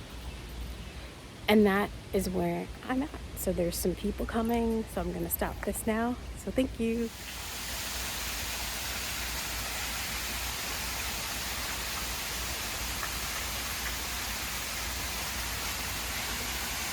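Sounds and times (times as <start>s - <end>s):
waterfall rushing: 7.1s - 16.9s.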